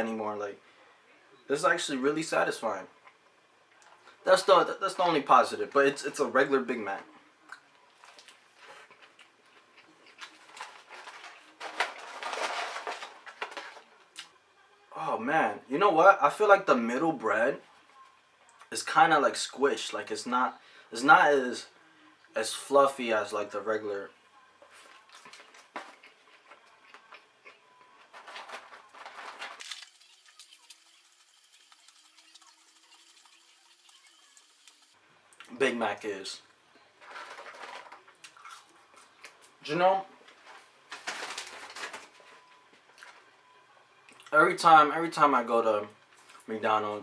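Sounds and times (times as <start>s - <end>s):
man chewing and eating: 7.5s - 11.5s, 24.7s - 28.2s, 29.6s - 35.6s, 37.0s - 39.6s, 42.7s - 43.3s, 44.0s - 44.4s
close-up chewing: 24.8s - 28.0s, 38.2s - 39.6s.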